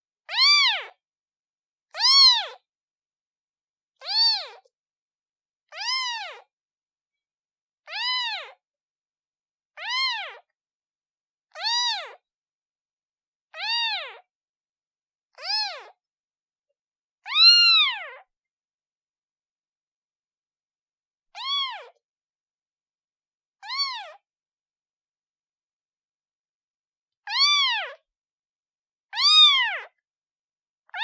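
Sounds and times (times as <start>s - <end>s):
kitten meowing: 0.3s - 1.0s, 2.0s - 2.6s, 4.0s - 4.7s, 5.7s - 6.5s, 7.9s - 8.6s, 9.8s - 10.4s, 11.6s - 12.2s, 13.6s - 14.2s, 15.4s - 16.0s, 17.3s - 18.2s, 21.4s - 22.0s, 23.6s - 24.2s, 27.3s - 28.0s, 29.2s - 30.0s.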